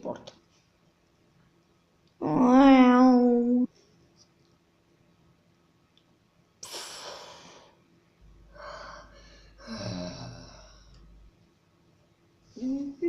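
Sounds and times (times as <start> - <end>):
low hum: 8.2 - 11.6.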